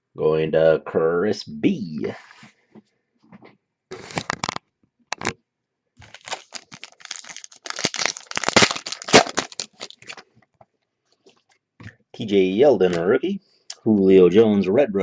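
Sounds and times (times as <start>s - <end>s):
foil wrappers tearing and crinkling: 4.0s - 4.6s, 6.0s - 10.2s.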